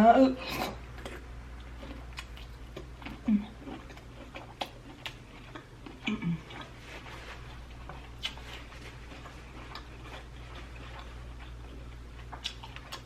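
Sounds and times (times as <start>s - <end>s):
low voiced hums: 6.0s - 6.8s.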